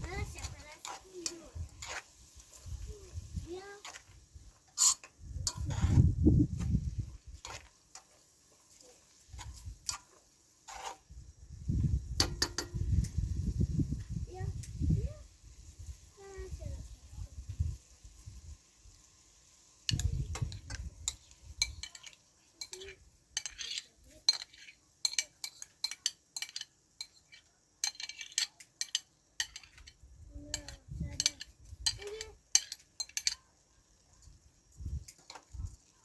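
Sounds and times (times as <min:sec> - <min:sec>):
dishes and utensils clinking: 0:19.9 - 0:33.4.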